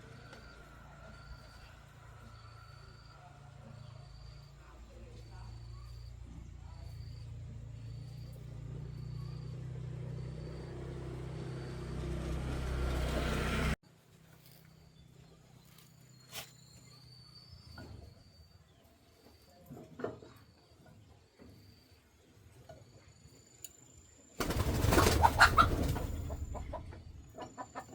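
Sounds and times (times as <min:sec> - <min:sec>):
insect chirping: 0:00.2 - 0:11.8.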